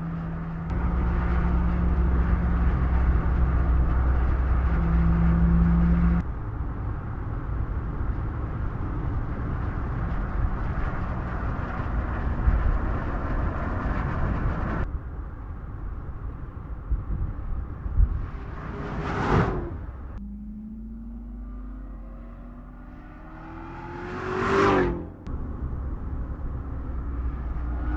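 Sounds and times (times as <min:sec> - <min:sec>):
car engine driving: 0:00.0 - 0:14.9, 0:17.3 - 0:27.9
road and tyre noise: 0:00.0 - 0:27.9
approaching car whoosh: 0:17.9 - 0:27.9.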